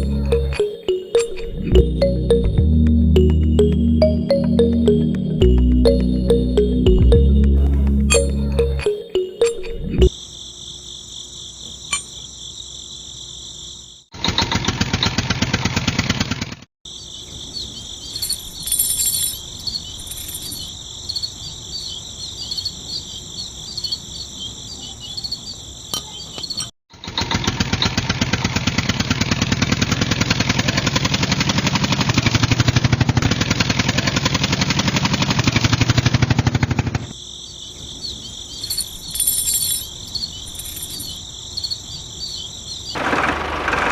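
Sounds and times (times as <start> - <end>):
crickets chirping: 10.1 - 14.1, 16.9 - 26.7, 37.1 - 43.0.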